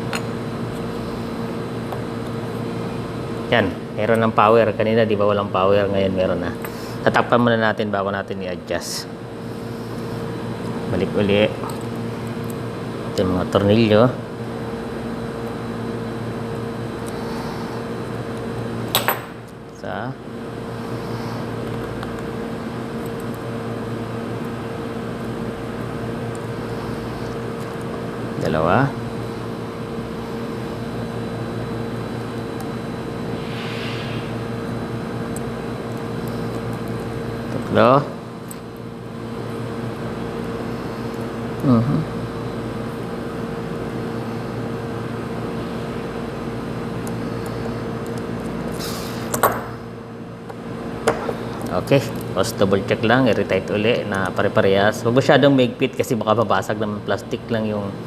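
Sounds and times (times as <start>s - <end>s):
air conditioner humming: 0.0s - 58.0s
short rustling scrape: 33.4s - 34.4s.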